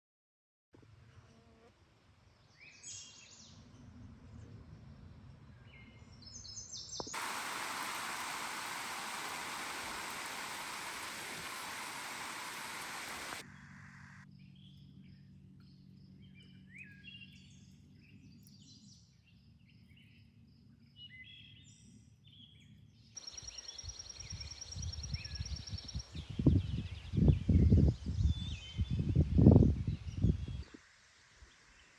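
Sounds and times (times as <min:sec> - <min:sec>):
small birds chirping: 0:06.4 - 0:13.4
wind buffeting microphone: 0:07.2 - 0:13.4, 0:24.8 - 0:30.7.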